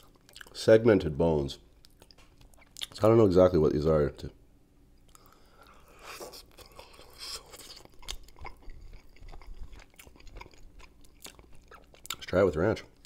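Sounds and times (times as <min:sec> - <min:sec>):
person chewing meat: 0:00.0 - 0:00.6, 0:05.0 - 0:12.3.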